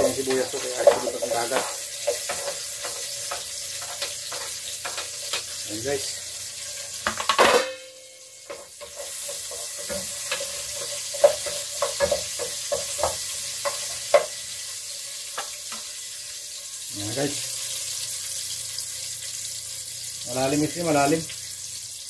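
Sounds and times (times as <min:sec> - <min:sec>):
onions sizzling in hot oil: 0:00.0 - 0:22.0
spatula knocking against pot: 0:08.5 - 0:14.4.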